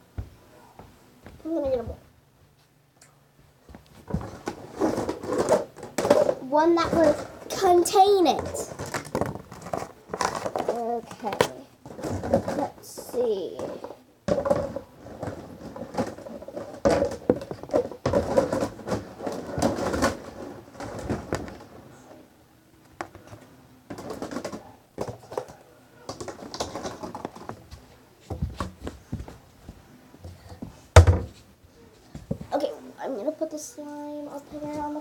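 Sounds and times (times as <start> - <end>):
household items knocking and clattering: 3.7 - 22.0, 22.9 - 31.5, 32.1 - 32.6.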